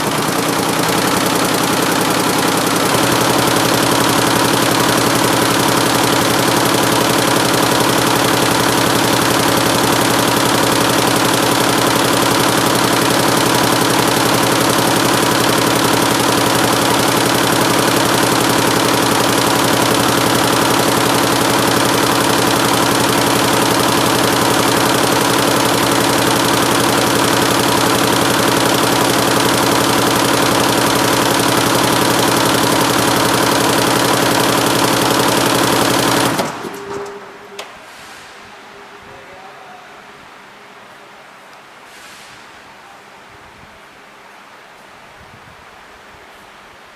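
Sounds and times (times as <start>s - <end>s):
embroidery machine clattering: 0.0s - 37.3s.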